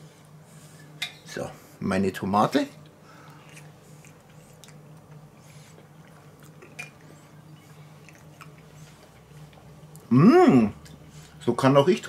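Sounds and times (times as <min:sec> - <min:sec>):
faint chewing: 0:02.8 - 0:10.1, 0:10.7 - 0:11.4.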